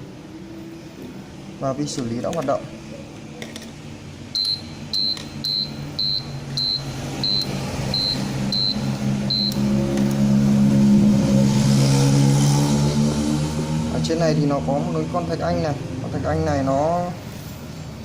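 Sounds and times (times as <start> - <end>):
buzzer short high beeps: 4.4 - 9.6
low motor hum: 4.8 - 16.6.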